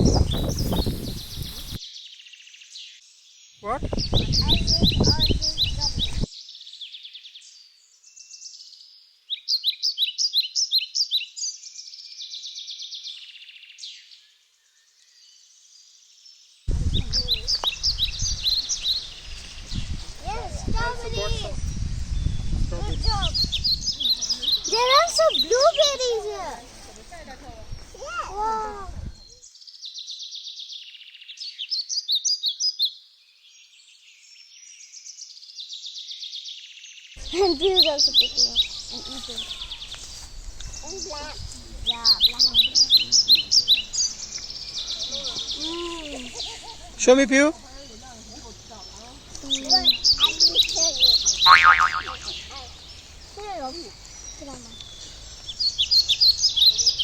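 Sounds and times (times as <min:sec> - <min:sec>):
sharp bird chirps: 0:00.0 - 0:07.6, 0:49.0 - 0:57.0
birds chirping and trilling: 0:00.0 - 0:57.0
loud outdoor background noise: 0:37.2 - 0:57.0.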